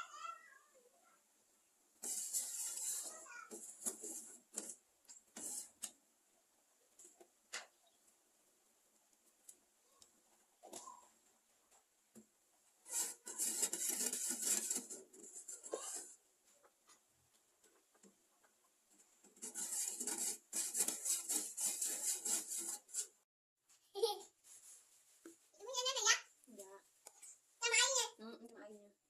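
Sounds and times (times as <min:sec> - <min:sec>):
rapid rasping scraping strokes: 0:02.0 - 0:05.9, 0:12.8 - 0:16.2, 0:19.2 - 0:23.3.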